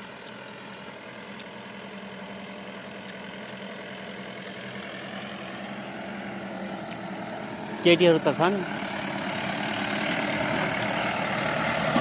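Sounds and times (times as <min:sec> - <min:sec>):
vehicle engine humming inside: 0:00.0 - 0:12.0.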